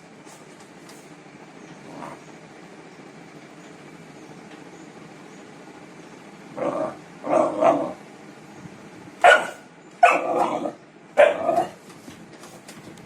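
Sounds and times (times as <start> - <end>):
puppy barking: 9.2 - 11.8.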